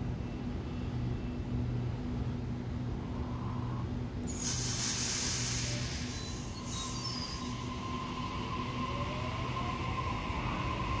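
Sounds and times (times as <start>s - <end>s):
loud hiss: 4.3s - 7.8s
electric train moving: 4.3s - 11.0s
steady high squeal: 5.4s - 11.0s.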